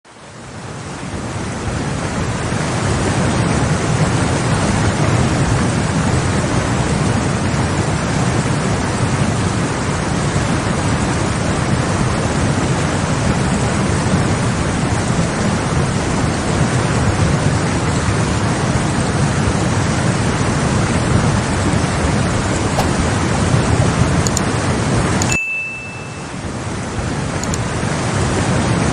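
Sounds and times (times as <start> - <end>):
floodwater rushing: 17.8 - 25.2.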